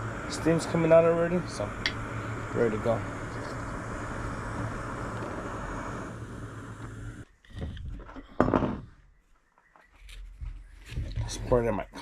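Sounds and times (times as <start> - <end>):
stove burner hissing: 0.0 - 7.3.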